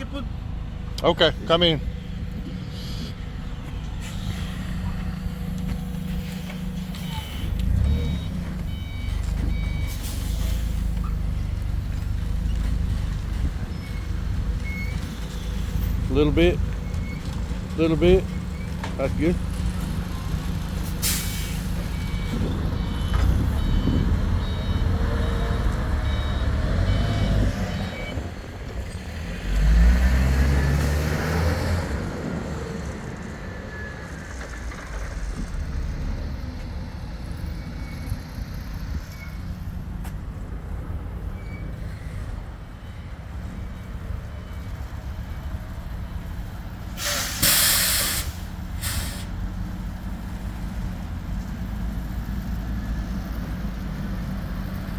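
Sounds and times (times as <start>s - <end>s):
forklift engine rumble: 0.0s - 54.9s
forklift reversing beeps: 6.2s - 12.6s, 13.6s - 16.0s, 21.1s - 28.4s
air-brake hiss: 47.0s - 49.3s.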